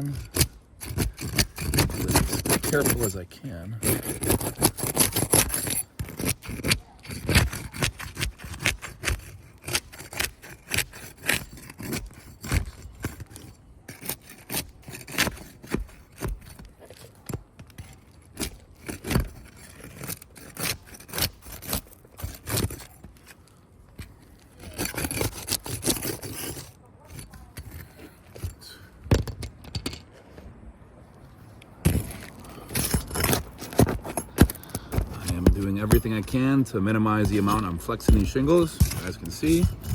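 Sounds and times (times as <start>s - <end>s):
tool knocking against shingles: 0.0s - 3.2s, 23.9s - 30.1s, 31.8s - 39.9s.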